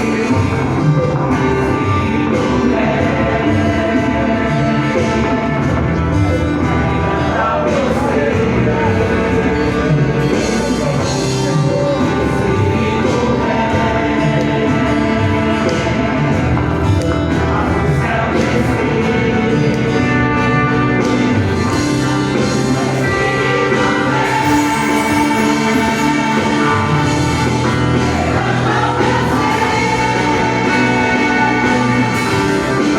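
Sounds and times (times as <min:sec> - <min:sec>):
choir singing with band: 0:00.0 - 0:32.9.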